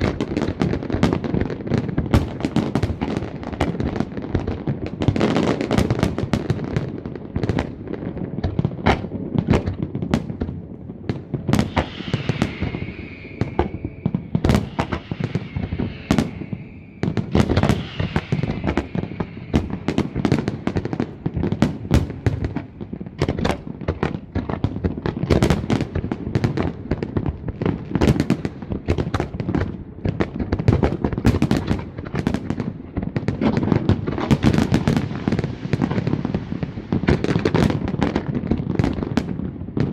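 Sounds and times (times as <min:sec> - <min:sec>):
fireworks bursts: 0:00.0 - 0:39.9
fireworks hissing: 0:11.3 - 0:24.3, 0:33.2 - 0:39.4.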